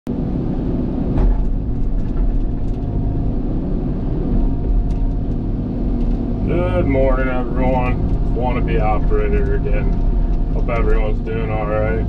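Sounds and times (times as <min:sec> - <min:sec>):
excavator diesel engine rumbling: 0:00.1 - 0:12.0
light clicks and rattles: 0:01.2 - 0:03.0.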